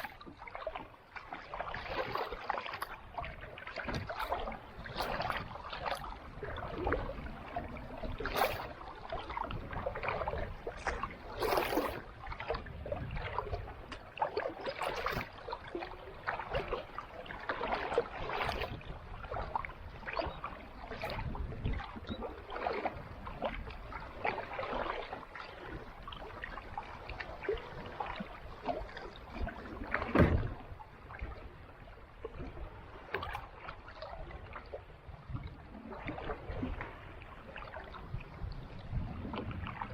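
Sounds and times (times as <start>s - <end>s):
water dripping from paddle: 0.0s - 7.0s
kayak paddle splashing in water: 0.0s - 34.9s.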